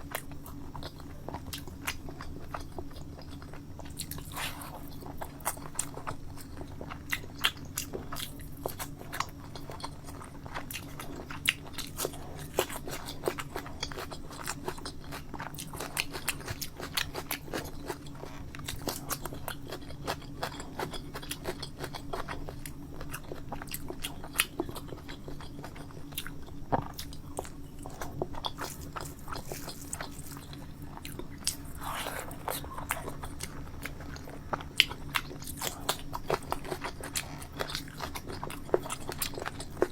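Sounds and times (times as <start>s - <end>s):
food crunches: 0.0s - 39.9s
person chewing food: 0.0s - 39.9s
low hum: 27.2s - 38.0s.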